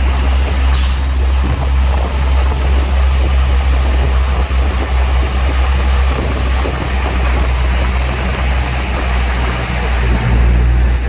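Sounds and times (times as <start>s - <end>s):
heavy machinery diesel engine: 0.0s - 11.0s.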